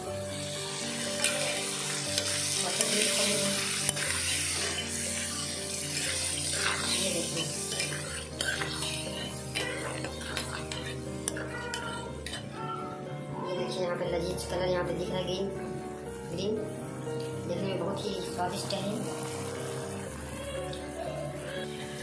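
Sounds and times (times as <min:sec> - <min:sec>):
chicken sizzling in a frying pan: 0:00.0 - 0:12.0, 0:18.1 - 0:22.0.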